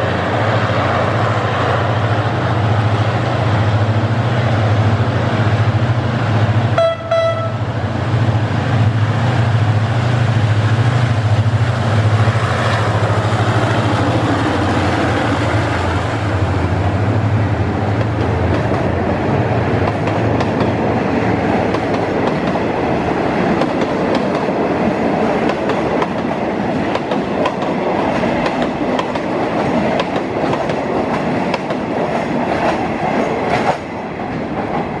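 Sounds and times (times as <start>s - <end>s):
train wheels clacking over rail joints: 17.9s - 19.1s, 19.8s - 20.8s, 23.4s - 35.0s.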